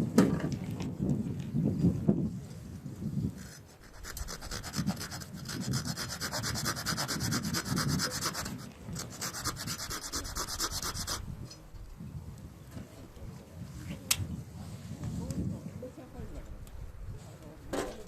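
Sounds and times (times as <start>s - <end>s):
fast rubbing or scraping strokes: 3.4s - 11.3s.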